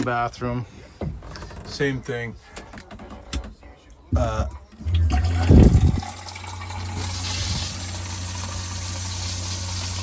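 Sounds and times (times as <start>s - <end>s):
water pump humming: 4.8s - 10.0s
water running from tap: 4.8s - 10.0s.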